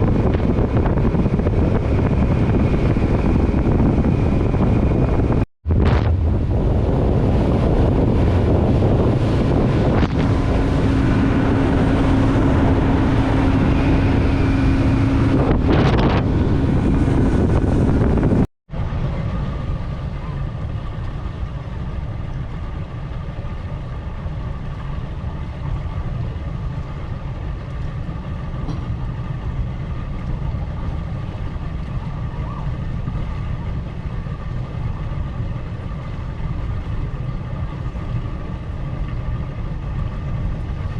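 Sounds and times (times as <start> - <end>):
boat motor running: 0.0 - 40.9
wind buffeting microphone: 0.0 - 40.9.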